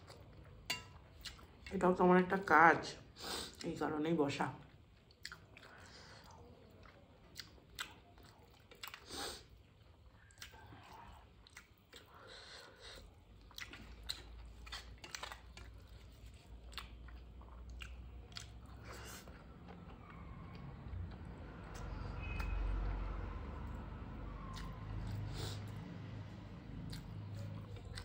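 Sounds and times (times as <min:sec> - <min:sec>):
chewing and wet mouth smacks: 0:01.2 - 0:01.7, 0:04.7 - 0:22.6, 0:24.4 - 0:25.8, 0:26.8 - 0:28.0.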